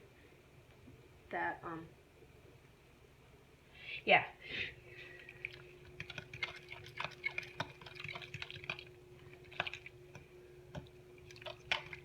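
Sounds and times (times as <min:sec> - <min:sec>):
stirring wet batter in a bowl: 0:05.0 - 0:12.0.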